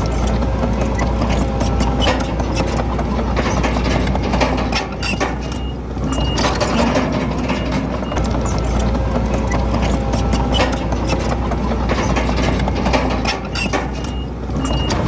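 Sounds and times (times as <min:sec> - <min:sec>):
bulldozer diesel engine running: 0:00.0 - 0:15.0
metallic clanking of tracks: 0:00.0 - 0:15.0.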